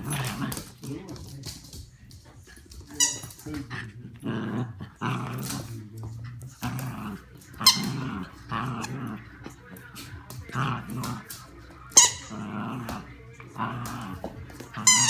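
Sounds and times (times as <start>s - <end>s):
dog growling: 0.0s - 1.3s, 3.5s - 11.4s, 12.2s - 15.0s.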